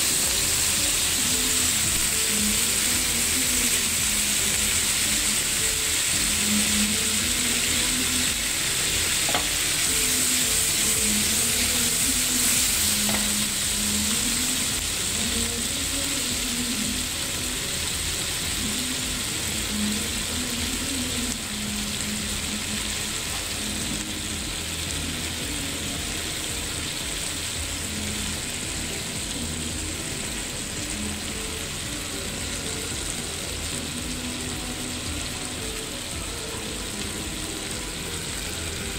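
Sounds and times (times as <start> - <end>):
food sizzling in oil: 0.0 - 38.9.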